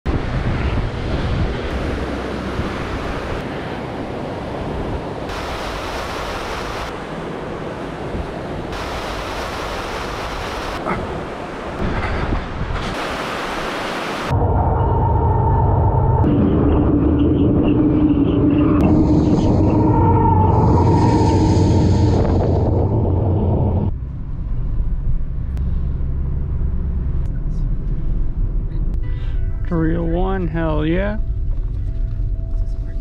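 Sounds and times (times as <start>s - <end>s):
wind buffeting microphone: 0.1s - 5.3s, 10.9s - 13.0s
surf on a beach: 0.1s - 14.3s
low rumble with steady hum: 14.3s - 33.0s.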